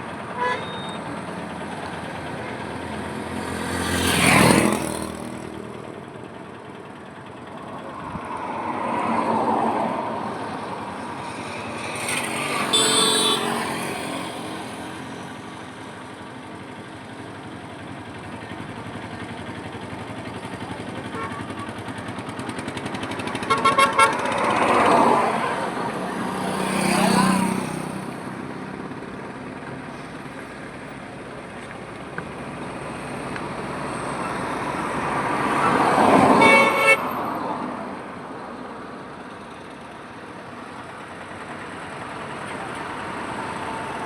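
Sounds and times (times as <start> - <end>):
vehicles passing on highway: 0.0 - 44.0
car horns honking: 0.3 - 1.0, 12.1 - 13.9, 23.4 - 24.6, 35.5 - 37.3.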